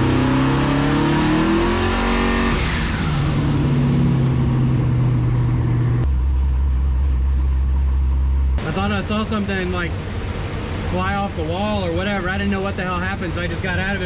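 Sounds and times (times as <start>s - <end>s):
engine revving at full throttle: 0.0s - 6.1s.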